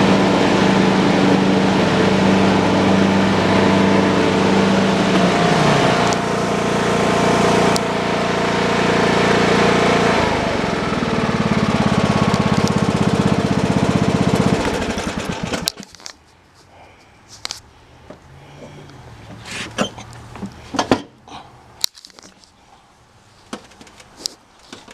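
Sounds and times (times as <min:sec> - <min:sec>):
lawn tractor engine running: 0:00.0 - 0:21.2.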